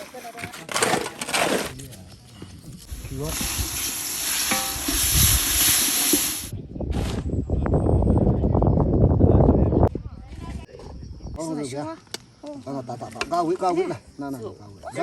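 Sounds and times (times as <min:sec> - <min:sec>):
food sizzling in a pan: 0:03.0 - 0:06.5.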